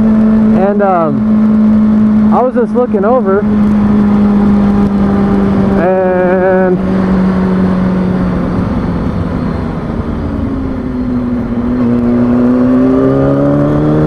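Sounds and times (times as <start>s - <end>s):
motorcycle engine running: 0.0s - 14.0s
wind rushing over microphone: 0.0s - 14.0s.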